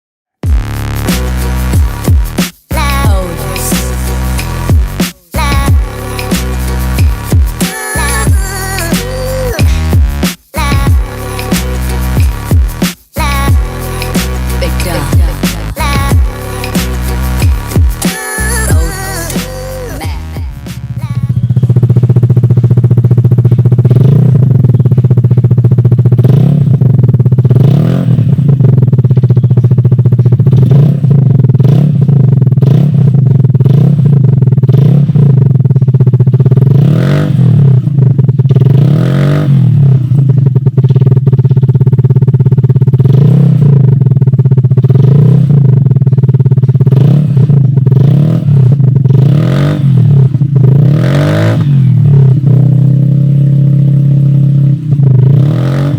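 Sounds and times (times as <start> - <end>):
scooter engine idling and revving: 0.4 - 55.9.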